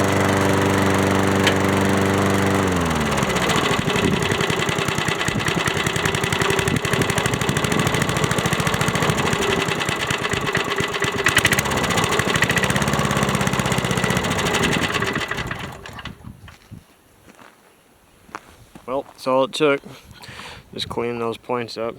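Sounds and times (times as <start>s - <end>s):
lawn mower engine running: 0.0s - 16.3s.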